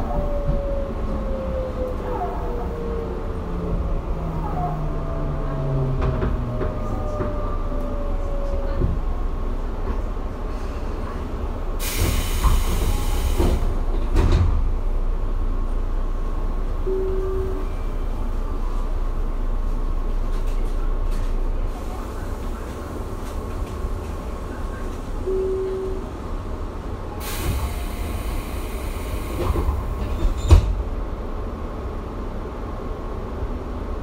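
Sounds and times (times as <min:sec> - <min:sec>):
train equipment humming: 0:00.1 - 0:33.9
air hiss: 0:11.8 - 0:13.7, 0:27.2 - 0:29.6
short beep: 0:16.9 - 0:18.1, 0:25.2 - 0:26.1.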